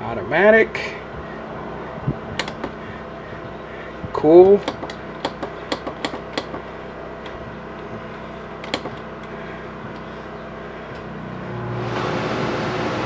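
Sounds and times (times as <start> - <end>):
air conditioner blower: 0.0 - 13.0
steady hum: 0.0 - 13.0
sharp clicks: 2.4 - 2.8, 4.1 - 10.1.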